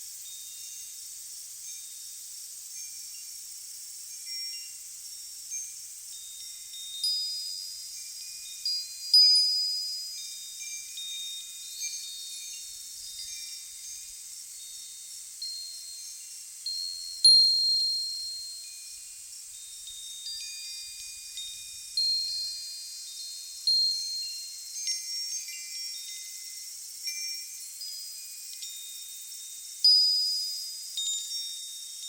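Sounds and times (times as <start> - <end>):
metal wind chimes ringing: 0.2 - 32.0.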